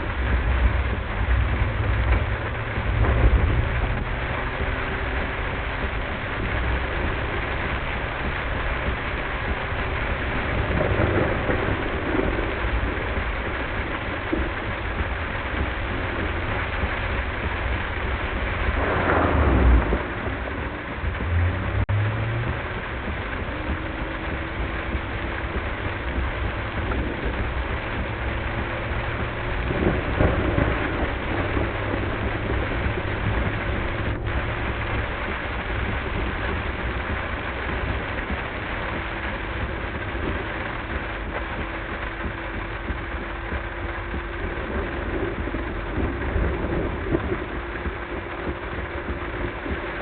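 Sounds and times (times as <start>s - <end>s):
car road and engine rumble: 0.0s - 50.0s
heavy rain on car: 0.0s - 50.0s
thunder: 0.0s - 50.0s.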